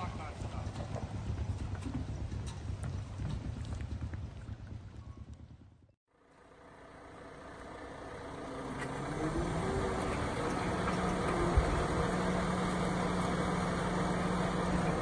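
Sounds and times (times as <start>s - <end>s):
engine humming: 6.1s - 15.0s.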